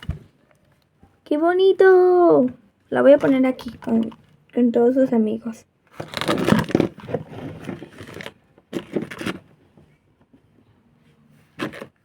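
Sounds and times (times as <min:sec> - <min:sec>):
packaging rustling and scraping: 0:05.9 - 0:09.6, 0:11.5 - 0:12.0.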